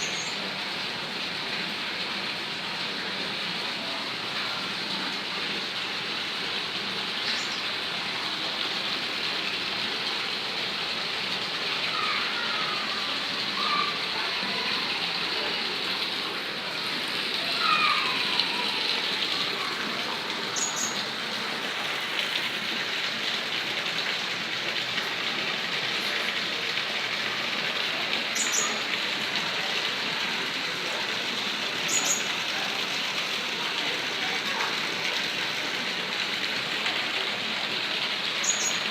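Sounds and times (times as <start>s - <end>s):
small birds chirping: 7.2s - 7.7s, 20.6s - 21.1s, 28.3s - 28.8s, 31.9s - 32.3s, 38.4s - 38.9s.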